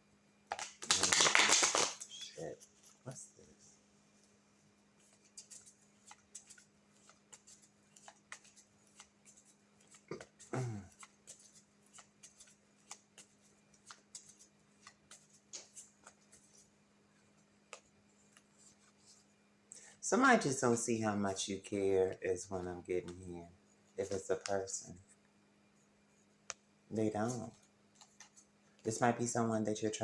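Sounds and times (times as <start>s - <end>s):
cards clicking and tapping: 0.5s - 2.1s.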